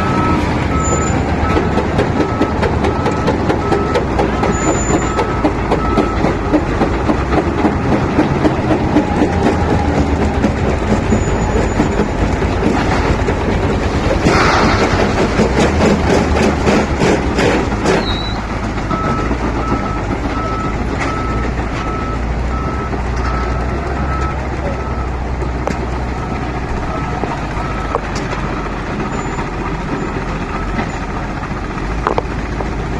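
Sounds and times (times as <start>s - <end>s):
reversing alarm beeps: 0.0s - 6.3s
wheel loader diesel engine: 0.0s - 32.9s.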